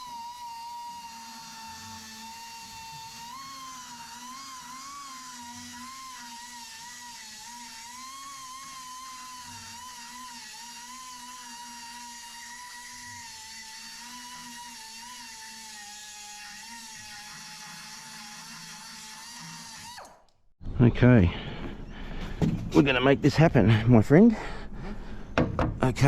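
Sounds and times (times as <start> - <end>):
motor whining: 0.0 - 20.4.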